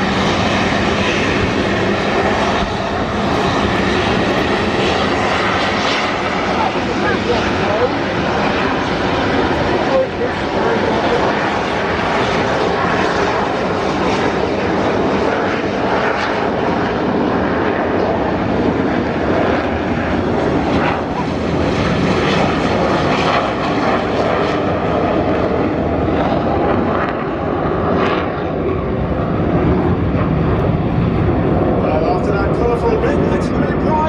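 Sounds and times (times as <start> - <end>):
aircraft engine noise: 0.0 - 34.0.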